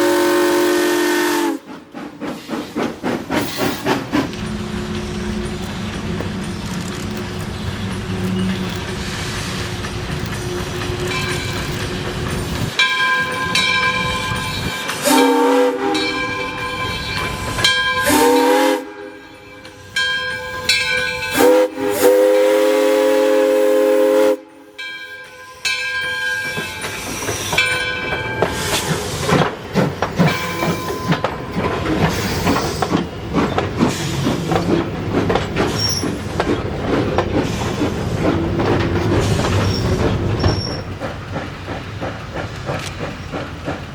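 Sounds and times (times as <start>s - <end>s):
steam locomotive whistle blasts: 0.0s - 1.7s, 13.6s - 16.9s, 17.9s - 25.8s
train wheels clattering on rails: 0.9s - 23.6s, 24.8s - 43.9s.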